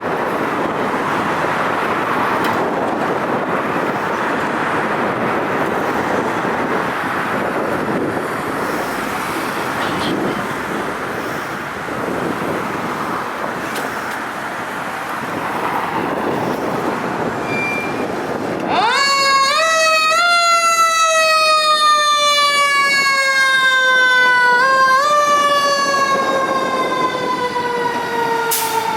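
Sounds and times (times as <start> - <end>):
city street traffic: 0.0 - 28.9
short high beep: 17.4 - 18.0.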